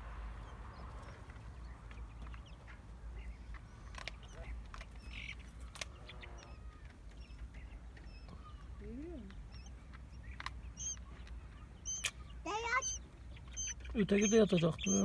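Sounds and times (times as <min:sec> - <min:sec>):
quail chicks peeping: 0:00.0 - 0:15.0.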